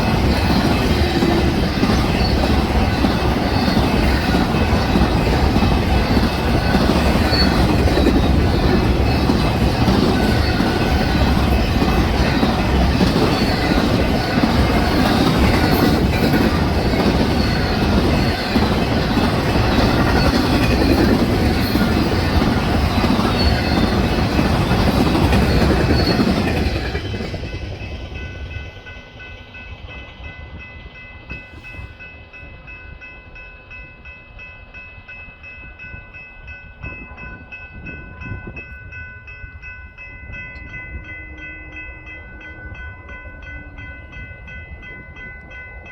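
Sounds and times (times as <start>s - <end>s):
train clattering over rails: 0.0s - 32.5s.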